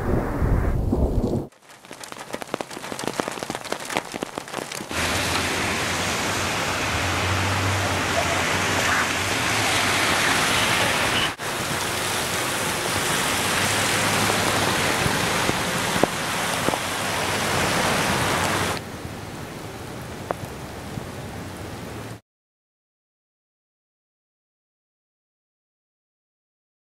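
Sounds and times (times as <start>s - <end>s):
heavy rain on pavement: 1.5s - 22.2s
water drip ticks: 1.6s - 5.5s.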